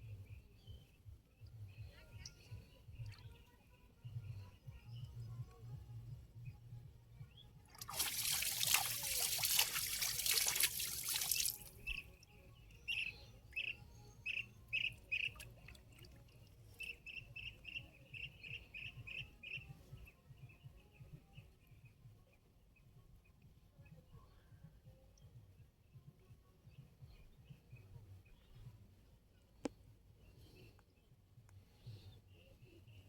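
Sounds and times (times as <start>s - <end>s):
water splashing and pouring: 7.7s - 11.8s
bird chirping: 11.2s - 21.4s.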